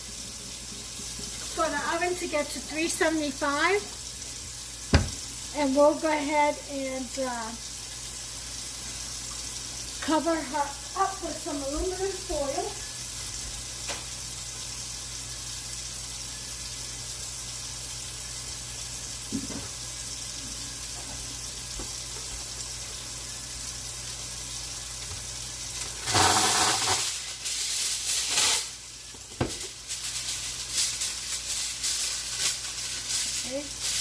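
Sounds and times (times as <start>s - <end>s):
aluminum foil crinkling: 25.8s - 28.8s, 29.6s - 34.0s.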